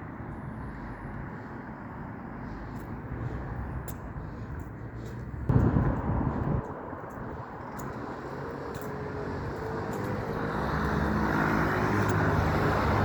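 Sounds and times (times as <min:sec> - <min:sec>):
vehicle engine hum and tyre noise: 0:00.0 - 0:13.0
low vehicle rumble: 0:05.2 - 0:08.5.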